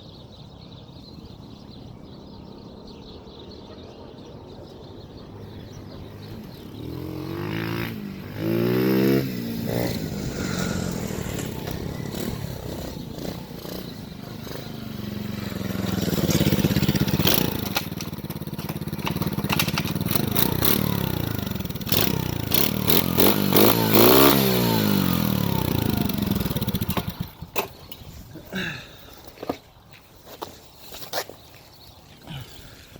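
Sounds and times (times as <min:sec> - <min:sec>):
motorbike engine revving: 0:05.6 - 0:28.8
bike clattering over rough ground: 0:10.9 - 0:30.5.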